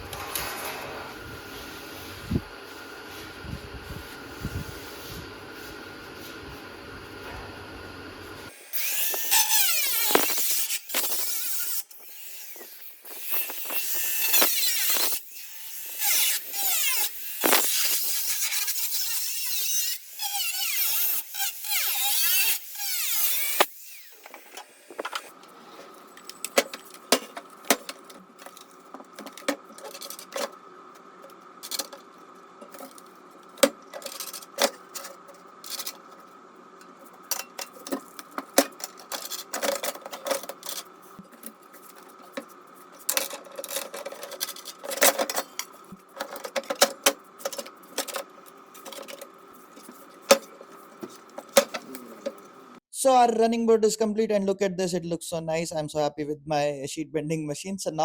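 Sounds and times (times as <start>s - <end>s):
steady hum: 0.0s - 11.2s, 23.3s - 52.8s
power tool cutting sheet metal: 8.5s - 25.4s.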